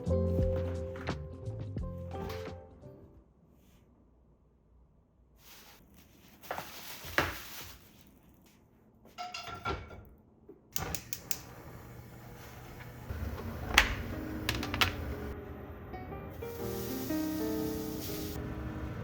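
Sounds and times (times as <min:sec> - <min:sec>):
kitchen knocks and clatters: 0:09.1 - 0:10.2, 0:12.8 - 0:15.4.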